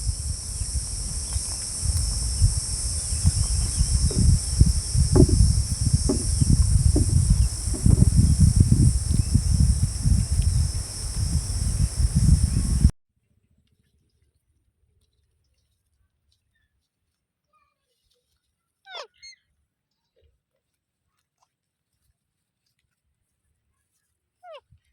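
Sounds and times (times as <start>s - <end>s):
high-pitched insect chorus: 0.0s - 12.9s
low rumble on microphone: 0.0s - 12.9s.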